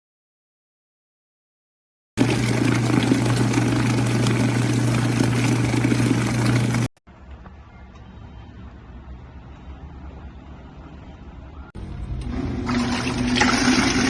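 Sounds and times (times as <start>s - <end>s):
washing machine motor humming: 2.2s - 6.9s, 11.8s - 14.0s.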